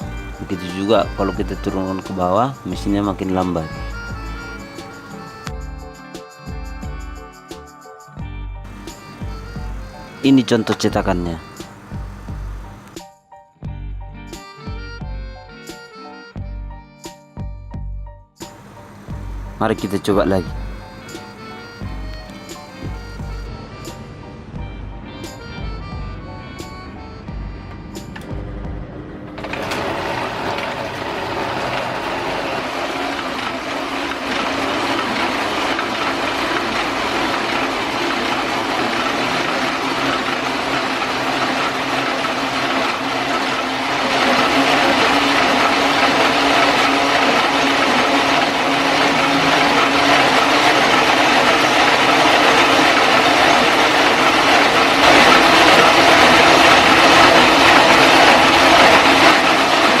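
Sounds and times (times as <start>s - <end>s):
printing press mechanical clatter: 0.0s - 5.5s, 18.5s - 23.5s, 29.2s - 60.0s.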